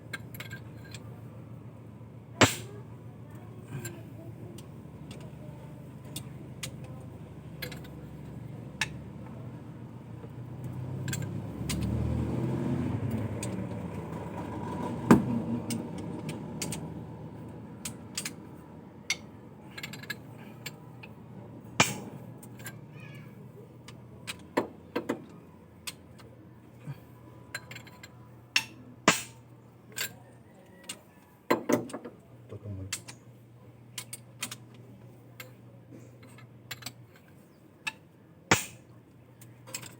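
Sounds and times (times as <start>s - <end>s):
metallic clinks and knocks: 0.1s - 1.1s, 7.6s - 9.0s, 10.6s - 12.2s, 17.8s - 21.2s, 27.5s - 32.1s, 35.4s - 39.9s
engine humming and revving: 4.6s - 22.6s.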